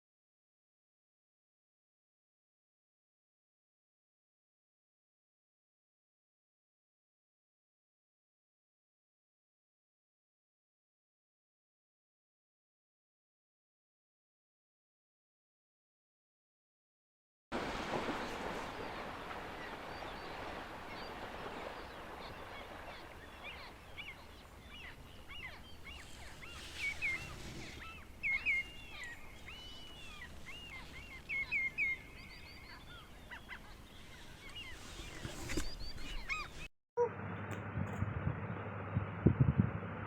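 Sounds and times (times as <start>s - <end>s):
birds chirping and whistling: 19.9s - 36.7s.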